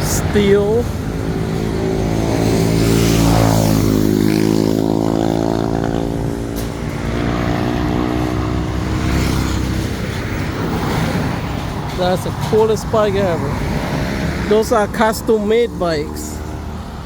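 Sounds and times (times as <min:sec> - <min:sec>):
motorcycle engine accelerating: 0:01.0 - 0:11.8.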